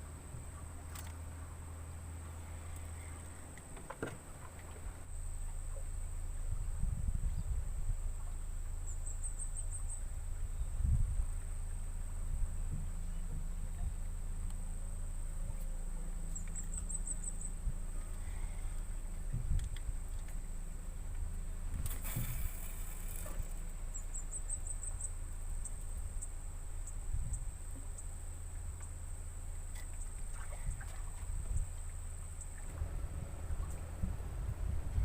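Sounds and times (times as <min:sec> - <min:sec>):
low rumble of handling noise: 0:00.0 - 0:35.0
insects droning: 0:13.5 - 0:35.0.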